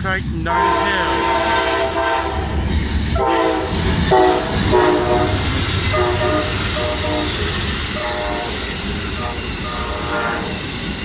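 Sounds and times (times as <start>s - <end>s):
train rumbling on rails: 0.0s - 11.0s
train horn blasts: 0.5s - 2.6s, 3.2s - 10.6s.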